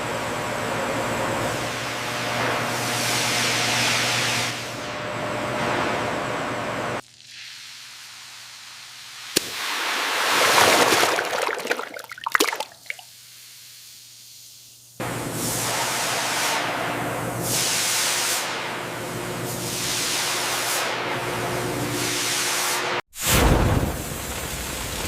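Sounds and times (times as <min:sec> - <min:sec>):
hissing water spray with clicks: 0:07.2 - 0:10.8.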